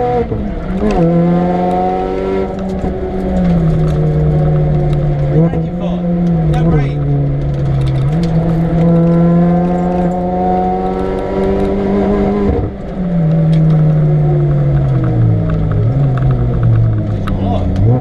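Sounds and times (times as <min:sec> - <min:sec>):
supercharged car engine revving: 0:00.0 - 0:18.0.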